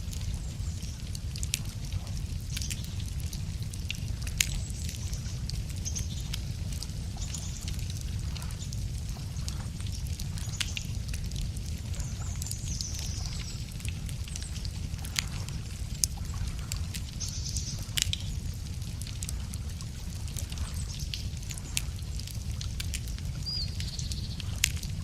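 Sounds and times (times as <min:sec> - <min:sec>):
campfire crackling: 0:00.0 - 0:25.0
small birds singing: 0:02.3 - 0:03.1, 0:04.4 - 0:11.1, 0:11.8 - 0:18.6, 0:20.4 - 0:22.3, 0:23.0 - 0:24.9.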